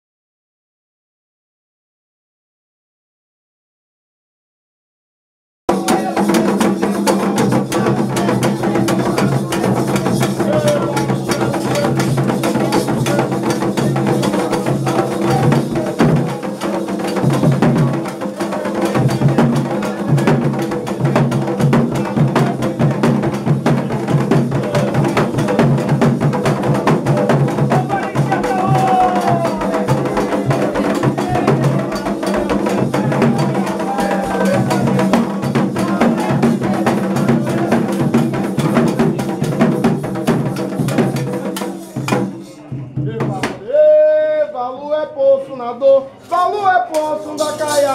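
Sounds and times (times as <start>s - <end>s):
hand drums playing fast rhythm: 5.7s - 43.6s
sharp clacking percussion: 5.7s - 43.6s, 46.2s - 47.9s.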